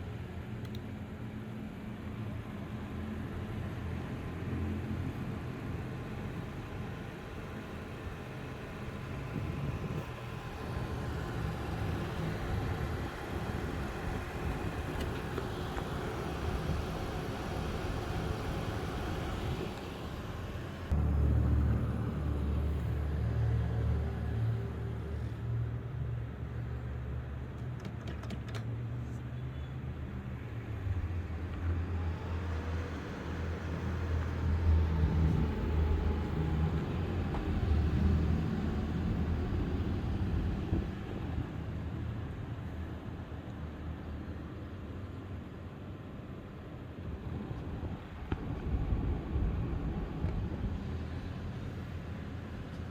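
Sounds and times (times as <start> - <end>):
graphics card fans droning: 0.0 - 23.4.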